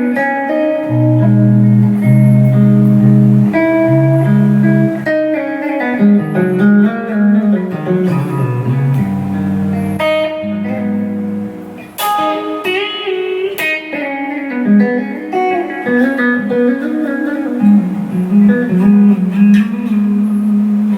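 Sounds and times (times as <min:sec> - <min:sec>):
electric guitar blues licks: 0:00.0 - 0:20.9.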